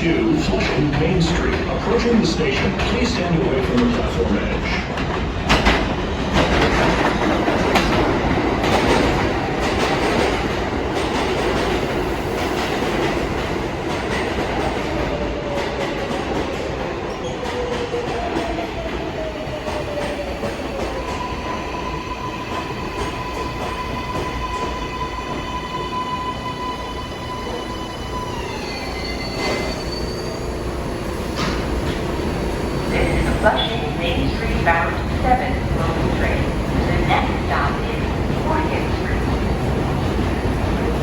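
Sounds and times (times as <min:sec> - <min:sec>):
subway train brakes whining: 0:05.5 - 0:41.0.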